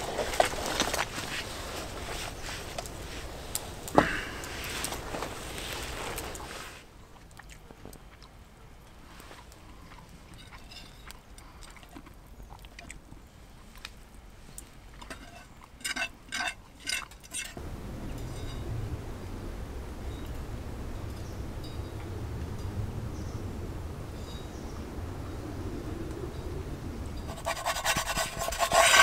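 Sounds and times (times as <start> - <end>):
metal utensils clinking on pan: 15.0 - 17.6.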